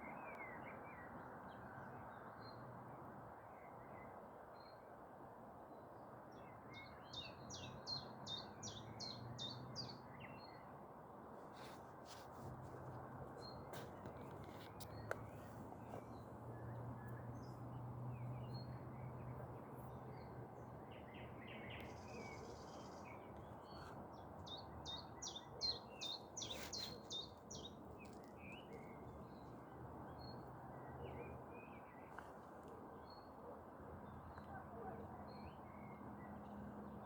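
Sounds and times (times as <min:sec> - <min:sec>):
small birds chirping: 0:21.0 - 0:29.6.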